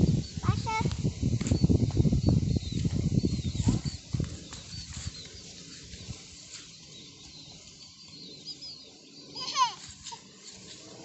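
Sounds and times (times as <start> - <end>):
rustling and crackling at microphone: 0.0 - 11.0.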